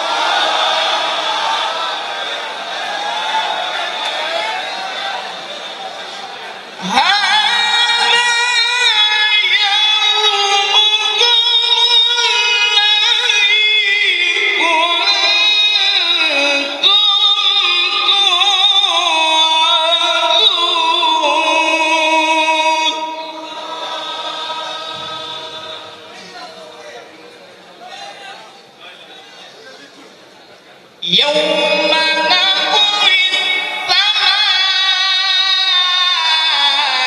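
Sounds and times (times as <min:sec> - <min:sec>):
man reciting in melodic chant: 0:06.8 - 0:23.8, 0:31.0 - 0:37.0.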